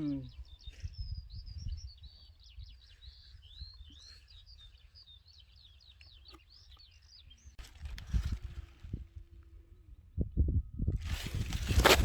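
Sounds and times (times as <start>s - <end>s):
wind rumble on microphone: 0.0s - 4.7s, 7.6s - 12.0s
songbirds singing: 0.0s - 9.0s
brief rustle: 7.6s - 9.2s, 11.0s - 12.0s.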